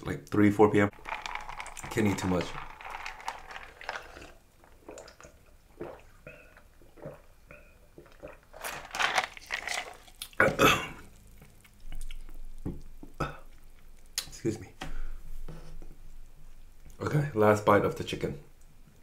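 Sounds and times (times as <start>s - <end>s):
crunchy chewing of fried food: 1.0s - 5.2s, 8.2s - 12.4s.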